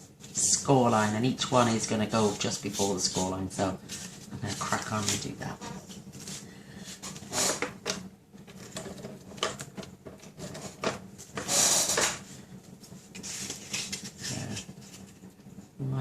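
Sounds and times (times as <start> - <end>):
paper and card rustling: 0.2 - 7.6, 12.1 - 15.3.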